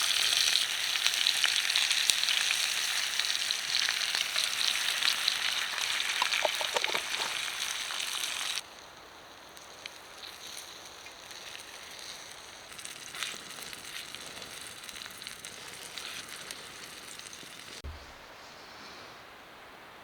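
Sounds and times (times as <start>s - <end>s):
food sizzling in a frying pan: 0.0s - 17.8s
fire crackles and pops: 0.0s - 18.2s
low thump: 17.8s - 18.2s.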